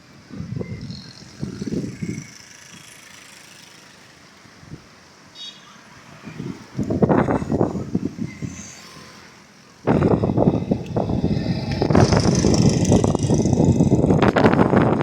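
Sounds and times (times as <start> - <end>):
wind buffeting microphone: 0.2 - 2.4, 6.4 - 8.6, 9.9 - 15.0.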